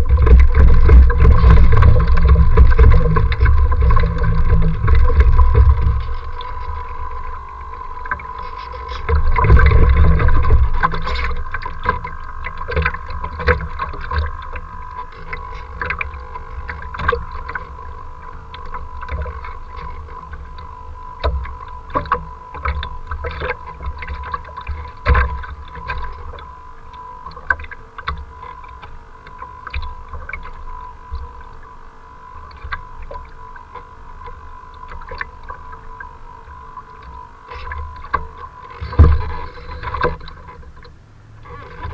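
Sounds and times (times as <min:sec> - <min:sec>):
wind buffeting microphone: 0:00.0 - 0:08.2
choppy water splashing: 0:00.0 - 0:41.9
steady thin whine: 0:00.0 - 0:41.9.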